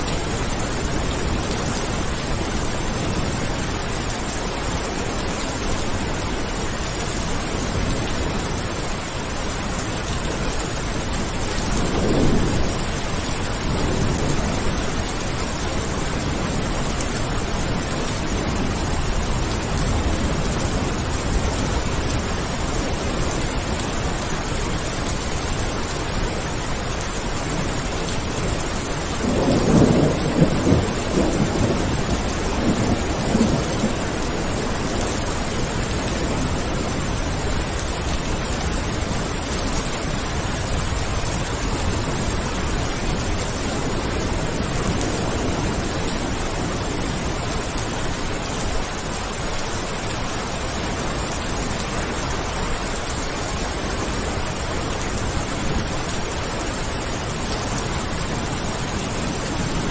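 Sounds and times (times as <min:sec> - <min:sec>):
steady rain: 0:00.0 - 0:59.9
rolling thunder rumble: 0:00.1 - 0:24.5, 0:25.7 - 0:49.2.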